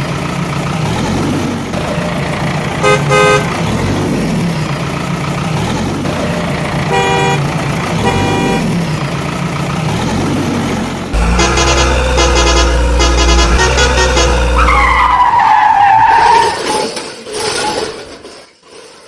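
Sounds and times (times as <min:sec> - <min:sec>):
vehicle engine running: 0:00.0 - 0:15.4
car horn honking: 0:02.8 - 0:03.5, 0:06.9 - 0:08.8, 0:11.2 - 0:15.4
loud different sound: 0:11.2 - 0:16.5.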